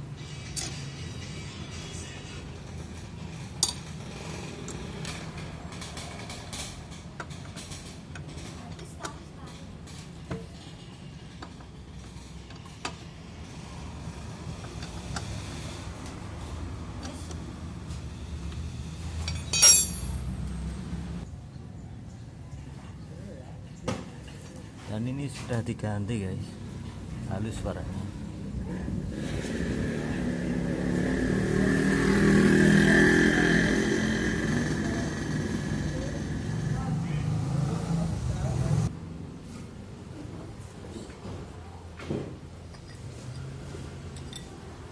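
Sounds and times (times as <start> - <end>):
steady drivetrain whine: 28.9 - 38.1
scooter engine running: 29.2 - 37.6.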